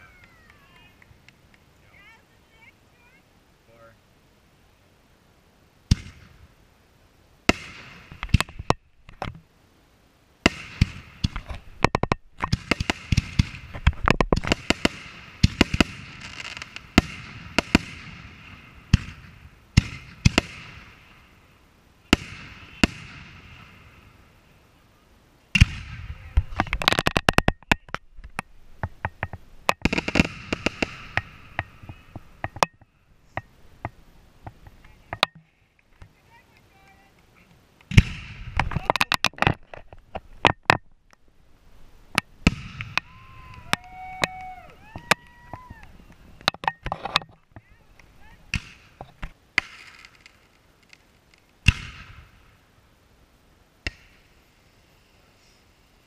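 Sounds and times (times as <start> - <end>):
firework crackling: 0.0 - 56.0
firework bangs: 5.9 - 6.6, 7.4 - 9.3, 10.4 - 24.4, 25.5 - 35.2, 37.9 - 40.8, 42.1 - 47.0, 47.9 - 52.6.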